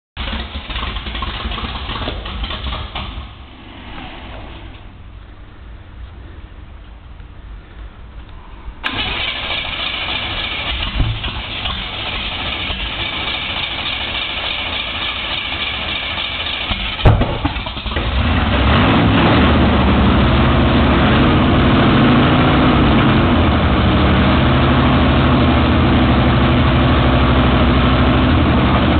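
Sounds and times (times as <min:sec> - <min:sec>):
engine cranking: 0:00.2 - 0:03.5, 0:08.8 - 0:19.1
race engine loud idle: 0:00.2 - 0:03.5, 0:08.8 - 0:28.9.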